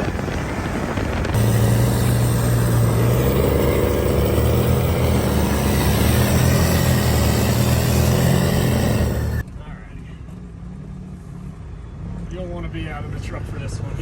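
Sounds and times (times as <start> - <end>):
diesel truck engine running: 0.0 - 9.4
wind and driving noise: 0.0 - 14.0.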